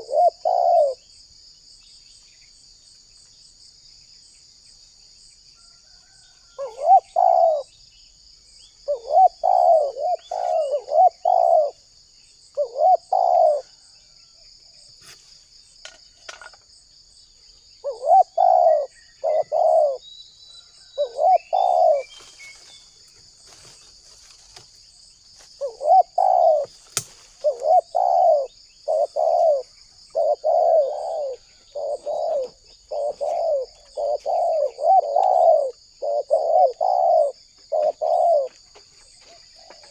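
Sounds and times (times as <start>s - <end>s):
dove cooing: 0.0s - 1.1s, 6.6s - 7.7s, 8.8s - 11.9s, 12.5s - 13.8s, 17.8s - 20.0s, 21.0s - 22.2s, 25.6s - 26.8s, 27.4s - 38.6s.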